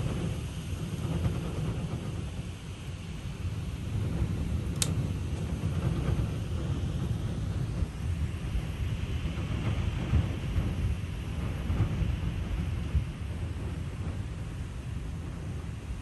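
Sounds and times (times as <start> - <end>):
wind buffeting microphone: 0.0 - 16.0
sharp click: 4.8 - 5.0.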